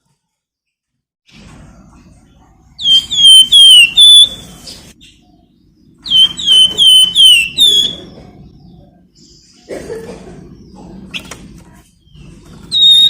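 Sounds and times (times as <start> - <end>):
songbird shrill whistled notes: 2.8 - 4.5, 6.0 - 8.1, 12.7 - 13.0.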